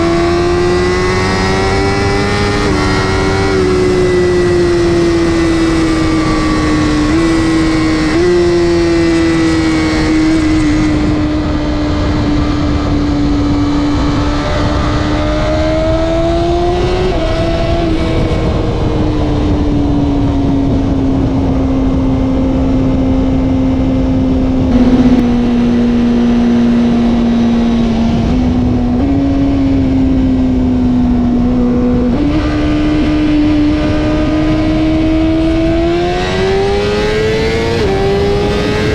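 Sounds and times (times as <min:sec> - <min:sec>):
short thump: 0:24.7 - 0:25.4.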